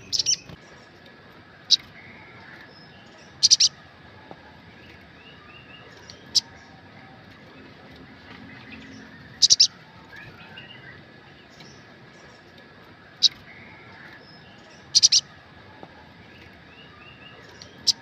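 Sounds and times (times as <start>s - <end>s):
bird high chirps: 0.0s - 0.9s, 1.7s - 3.8s, 4.8s - 6.9s, 8.4s - 12.5s, 13.2s - 15.4s, 16.3s - 18.0s
soft bird chirping: 0.0s - 18.0s.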